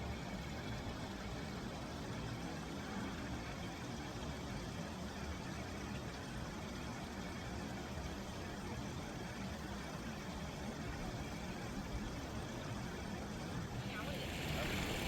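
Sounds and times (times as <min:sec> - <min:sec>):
faint hiss: 0:13.7 - 0:15.0.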